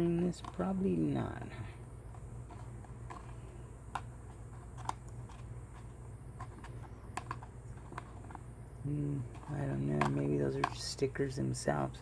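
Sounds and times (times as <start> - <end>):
low steady hum: 0.0 - 12.0
plastic clicks and taps: 3.9 - 8.4.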